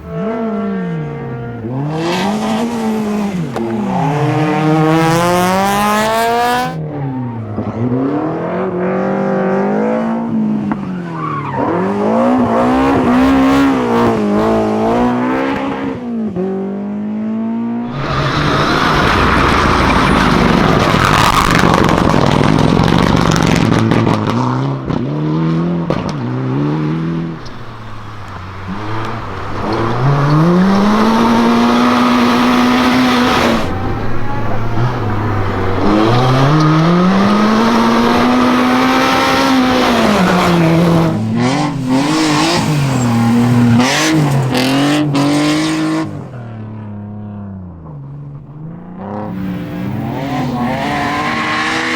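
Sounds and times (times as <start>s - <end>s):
harsh car passing: 0.0s - 16.3s, 17.6s - 51.9s
rally car engines revving: 0.0s - 51.9s
tyre squeal: 17.8s - 22.2s, 27.3s - 44.9s.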